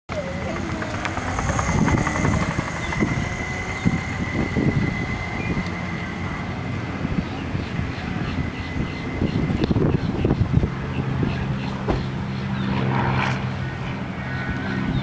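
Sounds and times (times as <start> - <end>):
rumbling rattling noise: 0.1 - 11.3
electric motorcycle motor whine: 0.1 - 15.0.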